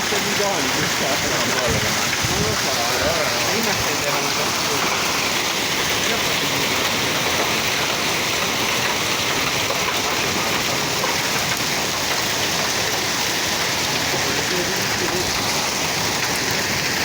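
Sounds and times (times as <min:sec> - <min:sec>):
heavy rain pattering: 0:00.0 - 0:17.0.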